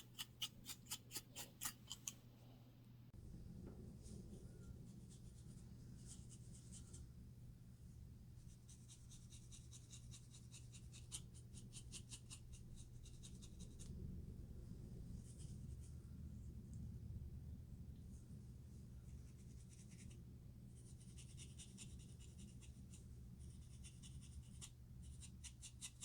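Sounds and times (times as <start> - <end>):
faint scratching on scalp: 0.0 - 2.1, 4.2 - 7.1, 8.5 - 14.0, 19.0 - 26.0
low steady hum: 0.0 - 26.0.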